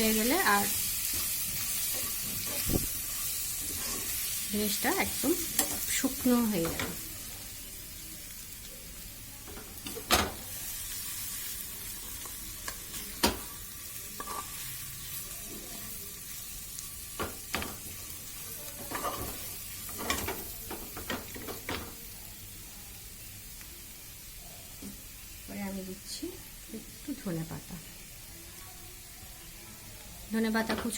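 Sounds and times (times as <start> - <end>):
chicken sizzling in a pan: 0.0 - 30.9
spatula scraping a pan: 0.2 - 4.4, 14.1 - 14.7, 18.8 - 21.7.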